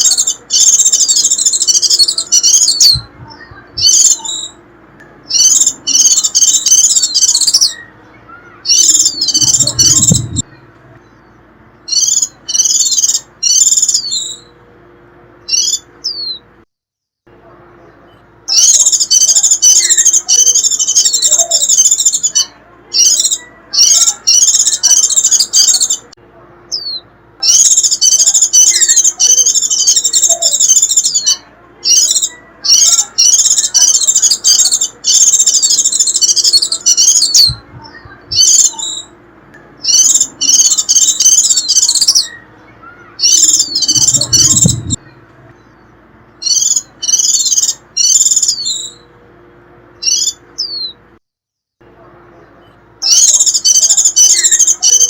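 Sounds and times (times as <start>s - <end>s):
bird shrill chattering call: 39.8s - 45.0s.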